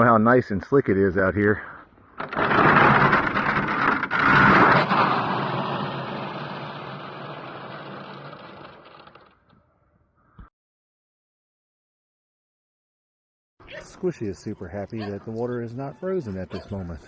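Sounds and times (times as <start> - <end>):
scraping on icy ground: 2.2 - 9.4.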